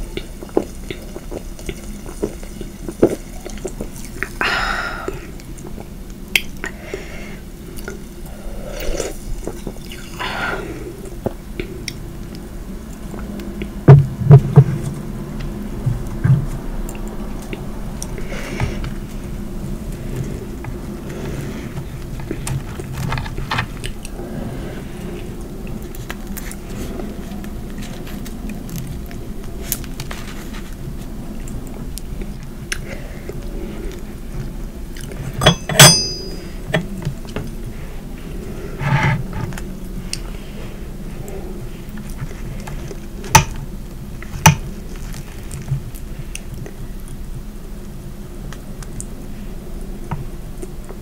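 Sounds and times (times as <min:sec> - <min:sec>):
eating sounds: 0:00.0 - 0:13.8, 0:14.4 - 0:35.4
light steady hum: 0:00.0 - 0:51.0
tableware clinking: 0:35.4 - 0:36.9.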